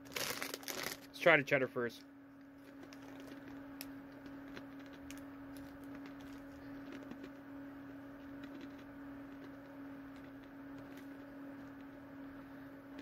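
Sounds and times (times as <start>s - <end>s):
steady hum: 0.0s - 13.0s
person chewing crunchy snack: 2.6s - 12.0s.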